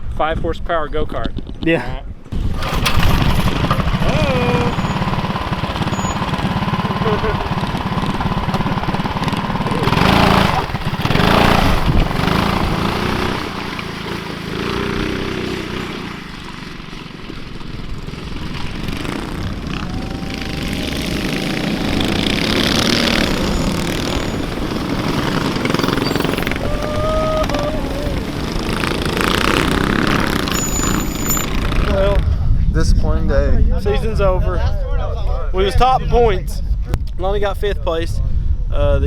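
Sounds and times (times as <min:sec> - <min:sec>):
small engines running: 0:02.3 - 0:32.3
voices: 0:02.6 - 0:11.7, 0:19.5 - 0:36.7.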